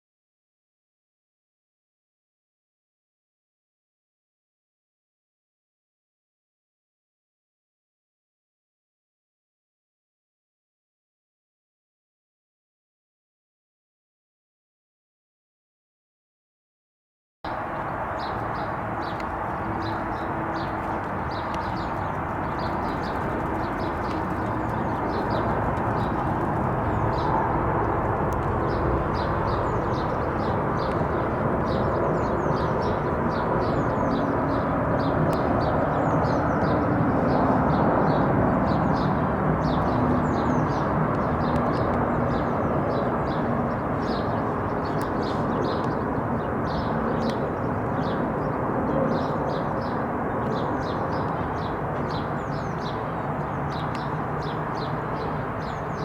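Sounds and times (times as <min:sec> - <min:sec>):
airliner jet rumble overhead: 0:17.5 - 0:56.0
small birds chirping: 0:18.1 - 0:56.0.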